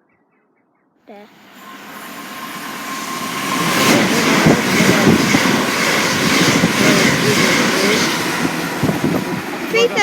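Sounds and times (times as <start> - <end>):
electric train passing at speed: 1.1 - 10.0
wheels knocking: 3.6 - 10.0.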